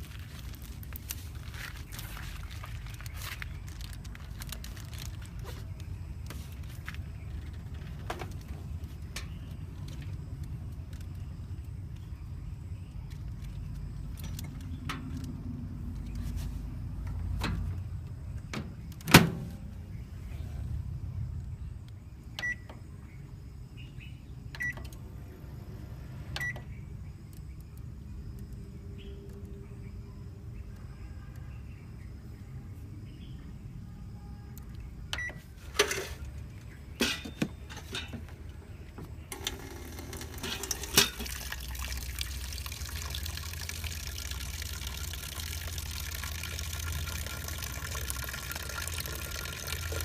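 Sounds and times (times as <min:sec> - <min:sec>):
microwave oven humming: 0:23.8 - 0:26.9, 0:39.3 - 0:41.4.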